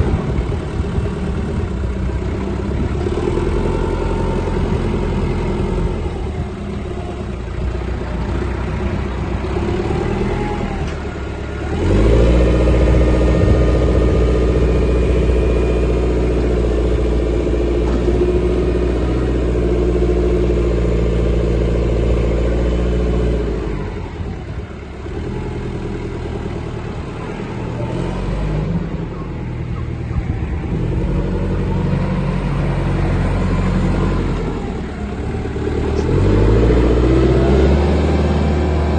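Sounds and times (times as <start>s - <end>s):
tractor diesel engine revving: 0.0s - 38.9s.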